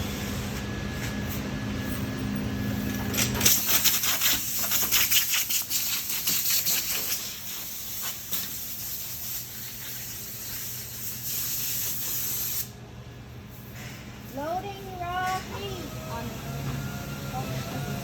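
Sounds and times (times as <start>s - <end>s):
compressed air blow gun hissing: 5.7s - 12.7s.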